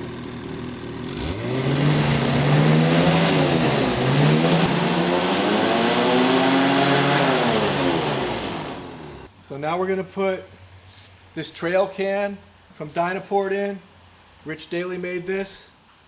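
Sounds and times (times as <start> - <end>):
snowmobile engine revving: 0.0 - 9.3.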